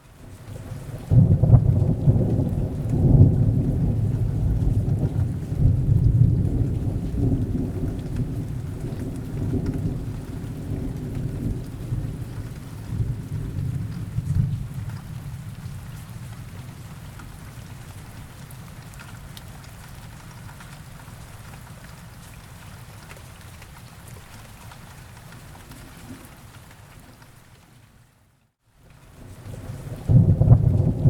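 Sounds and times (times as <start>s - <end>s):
rain falling: 0.0s - 31.0s
rolling thunder: 1.0s - 15.9s, 29.2s - 31.0s.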